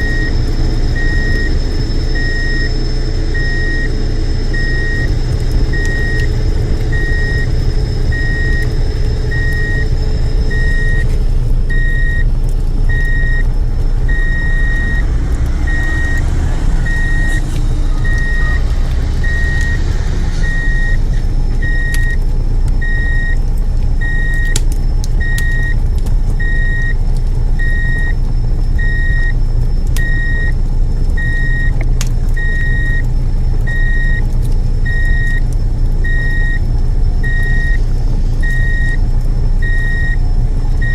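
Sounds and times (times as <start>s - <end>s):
reversing beeper: 0.0s - 12.3s, 12.9s - 22.2s, 22.8s - 23.4s, 24.0s - 24.6s, 26.4s - 27.0s, 27.6s - 30.6s, 31.2s - 31.8s, 32.4s - 33.1s, 33.7s - 35.4s, 36.0s - 39.0s, 39.6s - 40.9s
heavy truck engine running: 0.0s - 40.9s
sharp clicks: 21.5s - 22.8s, 23.5s - 26.4s.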